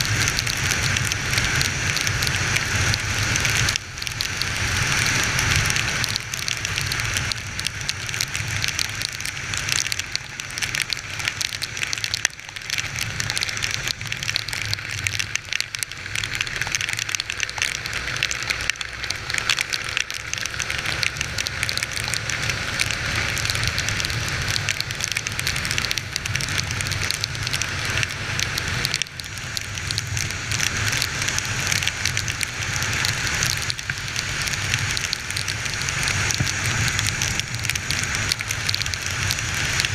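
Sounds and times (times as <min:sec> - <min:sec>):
heavy rain on microphone: 0:00.0 - 0:39.9.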